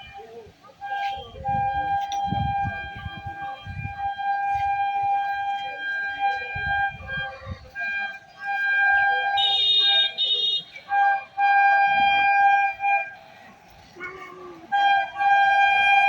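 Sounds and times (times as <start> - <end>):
wind buffeting microphone: 0.0 - 9.5
higher horn tone: 0.0 - 13.4
warning horn tone: 0.9 - 13.4, 14.7 - 16.0.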